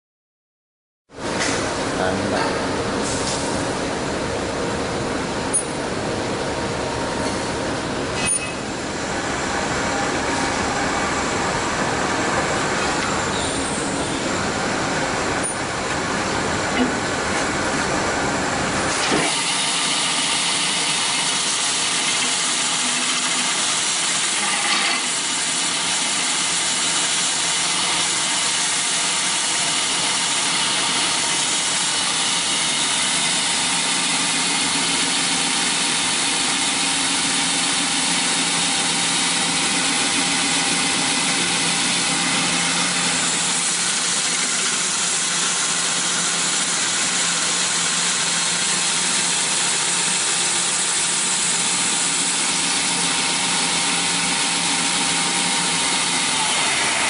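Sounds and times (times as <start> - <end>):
sanding machine running: 17.5 - 57.0.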